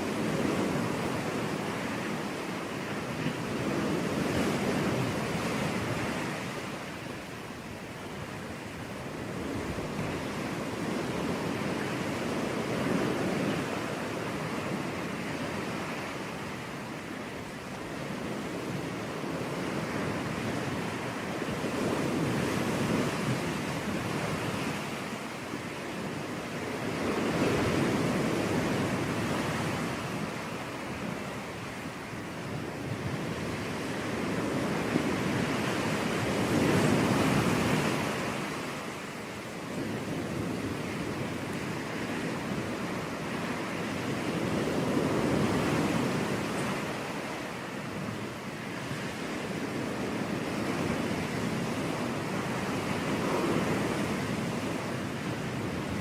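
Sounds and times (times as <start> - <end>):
sea waves breaking on beach: 0.0 - 56.0
wind: 0.0 - 56.0.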